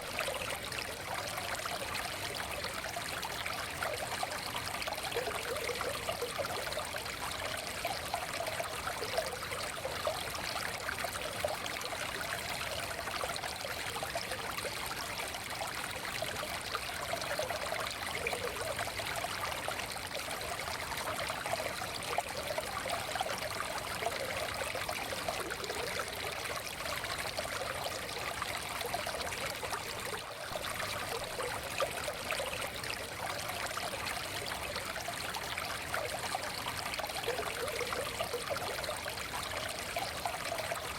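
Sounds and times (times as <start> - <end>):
stream flowing over rocks: 0.0 - 40.9.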